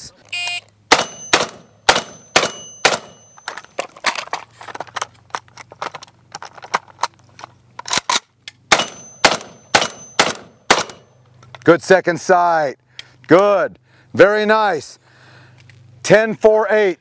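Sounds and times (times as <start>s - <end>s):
shotgun shots: 0.9s - 3.3s, 8.7s - 11.1s
steel plates ringing: 0.9s - 3.6s, 8.8s - 10.3s
shells loading clicks and clatter: 2.4s - 11.7s.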